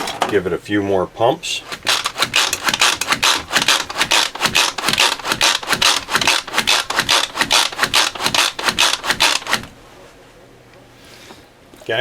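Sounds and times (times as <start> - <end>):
food processor blades whirring: 1.7 - 9.7.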